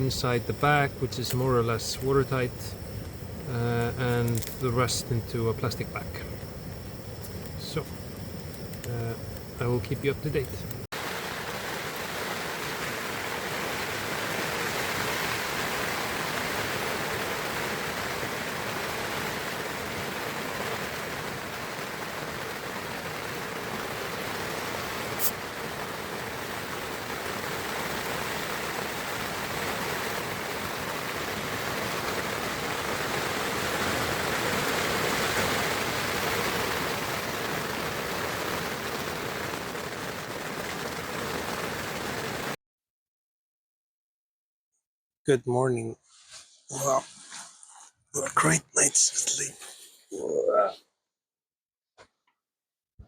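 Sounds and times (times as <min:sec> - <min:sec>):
rain falling on a tent: 0:00.0 - 0:02.5, 0:03.4 - 0:05.0, 0:08.7 - 0:42.6.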